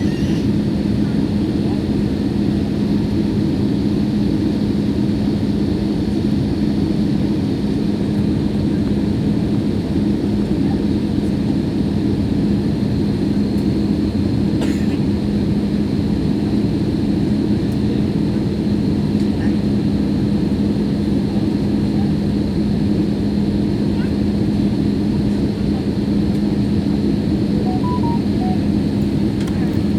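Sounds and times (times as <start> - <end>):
jet cabin engine drone: 24.0 - 29.9.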